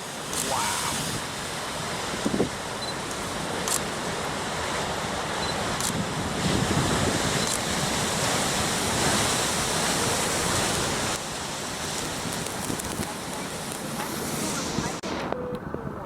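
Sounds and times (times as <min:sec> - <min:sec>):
storm surf breaking: 0:00.0 - 0:16.0
wind buffeting microphone: 0:00.7 - 0:02.8, 0:05.9 - 0:16.0.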